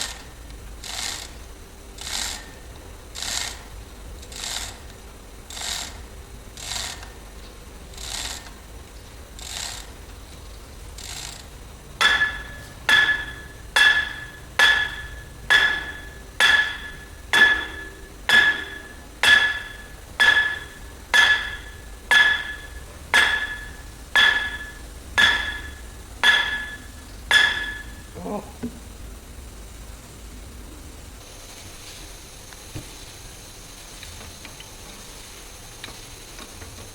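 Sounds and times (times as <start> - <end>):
hammer blows on metal: 12.0 - 28.2.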